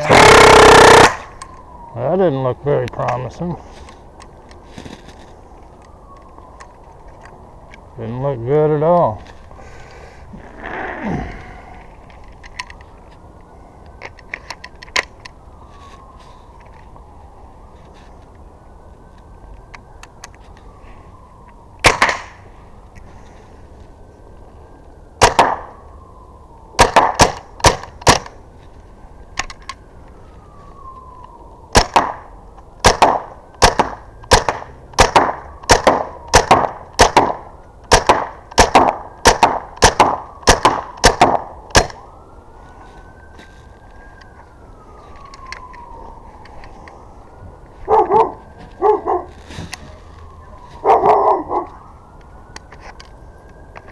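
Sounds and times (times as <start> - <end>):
distant siren wail: 0.0 - 53.9
launcher firing sharp pops: 21.8 - 22.4, 25.2 - 25.7, 26.8 - 28.3, 31.7 - 32.2, 32.8 - 42.0
dog barking: 47.9 - 49.4, 50.8 - 51.7.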